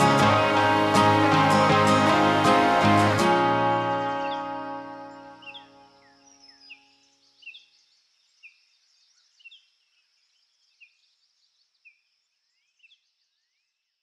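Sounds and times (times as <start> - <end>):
music: 0.0 - 6.6
bird chirping: 0.0 - 13.9.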